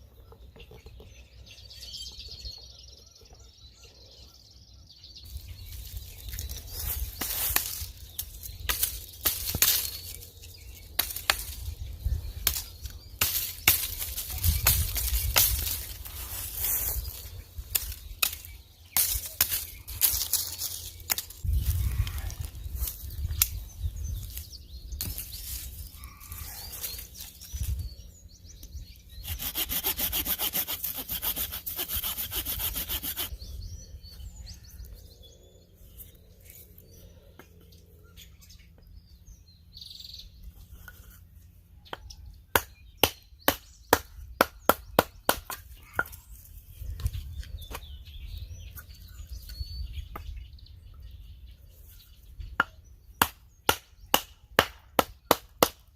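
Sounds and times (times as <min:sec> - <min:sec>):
hand saw cutting wood: 0:29.2 - 0:33.3.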